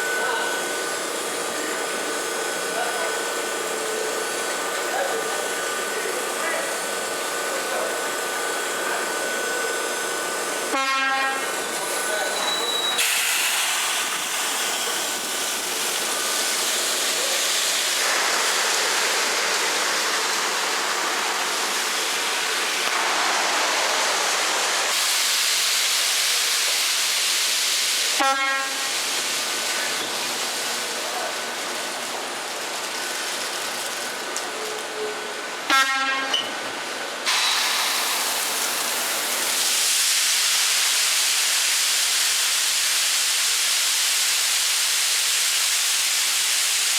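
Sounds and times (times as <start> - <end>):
short horn blasts: 10.8 - 11.5, 28.2 - 28.9, 35.7 - 36.4.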